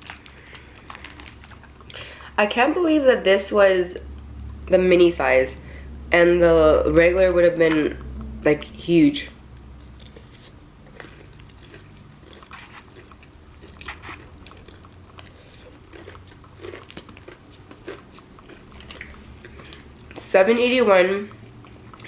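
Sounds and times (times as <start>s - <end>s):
person chewing crunchy food: 0.0s - 2.0s, 9.8s - 20.2s, 21.3s - 22.0s.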